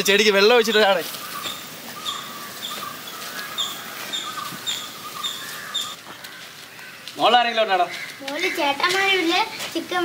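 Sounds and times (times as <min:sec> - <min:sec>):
bird chirping high: 0:00.3 - 0:09.2
faint bird calls: 0:00.7 - 0:09.3.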